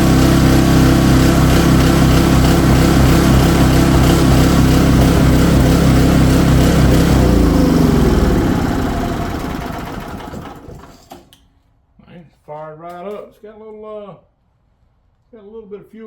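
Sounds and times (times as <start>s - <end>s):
engine winding down: 0.0s - 11.1s
generator engine running: 0.0s - 11.2s.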